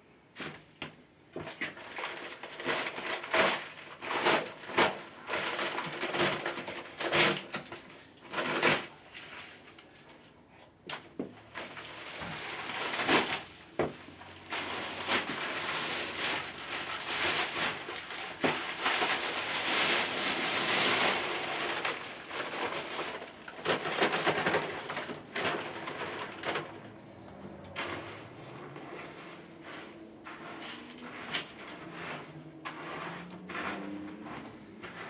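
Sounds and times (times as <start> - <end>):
gritty scraping on concrete: 11.7 - 35.0.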